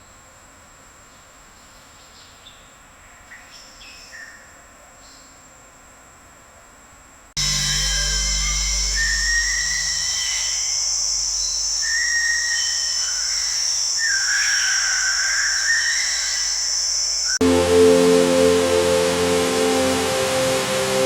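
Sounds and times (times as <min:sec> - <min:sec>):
high insect chorus: 0:07.4 - 0:17.4.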